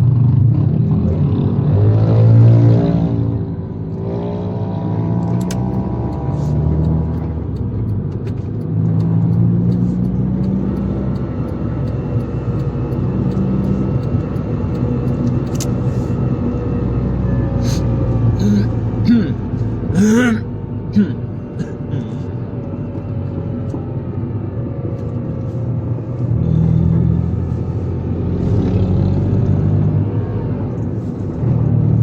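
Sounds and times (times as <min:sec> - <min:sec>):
car engine running: 0:05.2 - 0:28.5.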